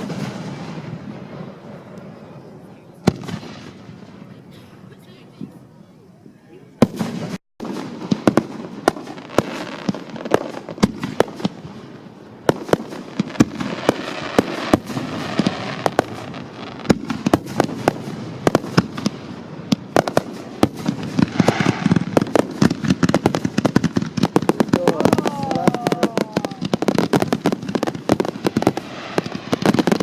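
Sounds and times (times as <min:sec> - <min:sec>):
firework bangs: 0:00.0 - 0:02.4, 0:03.0 - 0:04.6, 0:06.8 - 0:30.0
firework crackle: 0:00.0 - 0:04.3, 0:06.8 - 0:30.0.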